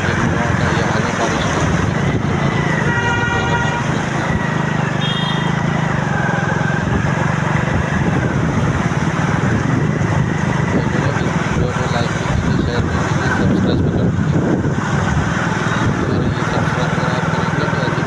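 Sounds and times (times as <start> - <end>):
traffic engine rumble and rushing: 0.0 - 18.0
vehicle horn blast: 2.7 - 5.7
short higher horn beep: 2.8 - 4.0, 5.0 - 5.6.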